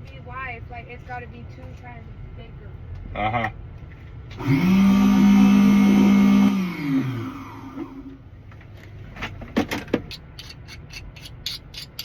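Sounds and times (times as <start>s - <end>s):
electric motor running: 4.4s - 8.0s.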